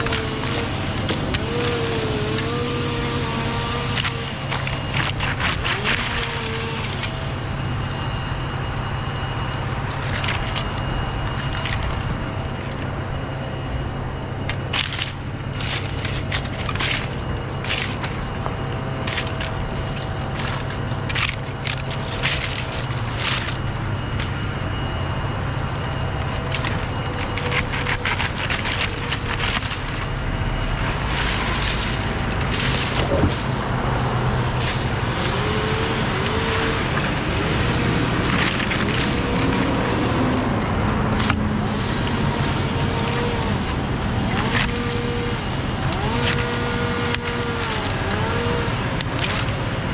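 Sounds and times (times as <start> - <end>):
sharp clicks and cracks: 0.0 - 7.2, 14.5 - 24.4, 26.3 - 30.2
engine running: 0.0 - 49.9.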